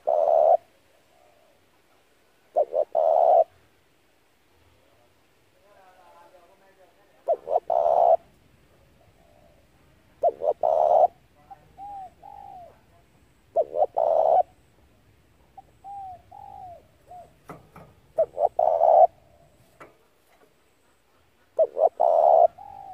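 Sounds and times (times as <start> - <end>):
dove cooing: 0.0 - 1.7, 2.5 - 3.6, 7.2 - 12.9, 13.5 - 14.6, 15.5 - 20.0, 20.6 - 22.9.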